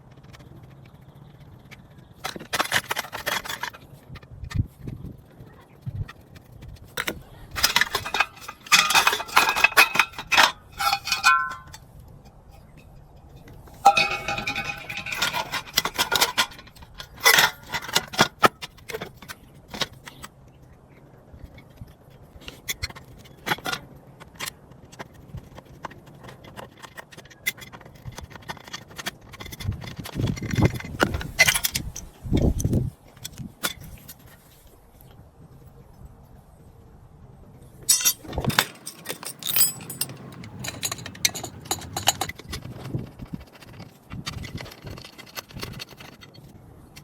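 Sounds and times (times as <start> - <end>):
metal parts and tools clinking: 7.0 - 11.8, 13.4 - 20.2, 27.8 - 32.7, 37.9 - 42.8.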